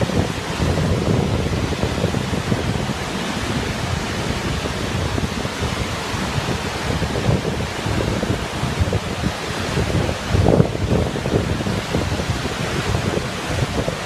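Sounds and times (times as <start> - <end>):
waterfall roaring: 0.0 - 14.0
wind buffeting microphone: 0.0 - 14.0.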